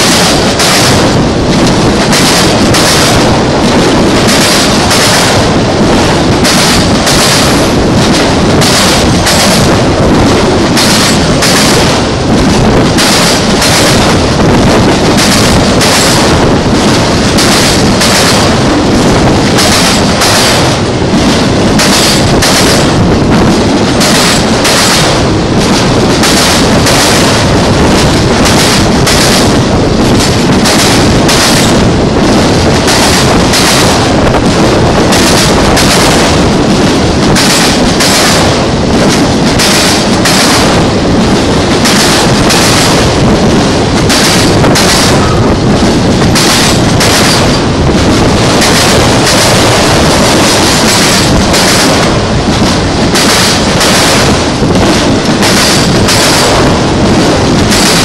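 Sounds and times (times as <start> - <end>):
freight train passing at speed: 0.0 - 58.0.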